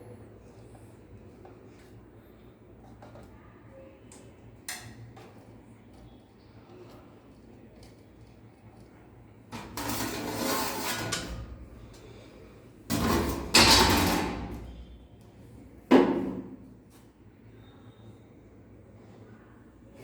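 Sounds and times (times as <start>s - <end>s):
heavy metal scraping: 9.6s - 11.8s
metal banging: 12.9s - 15.0s.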